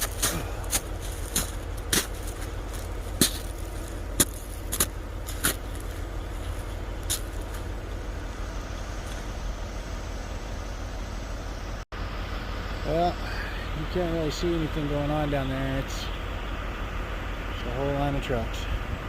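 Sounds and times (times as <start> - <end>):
footsteps crunching on snow: 0.0 - 8.1
steady low rumble: 0.0 - 19.0.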